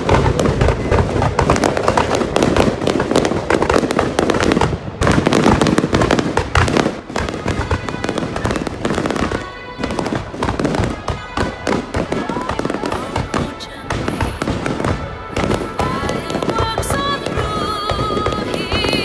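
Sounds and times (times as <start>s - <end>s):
fireworks cracking and popping: 0.0s - 19.0s
music: 7.3s - 19.0s.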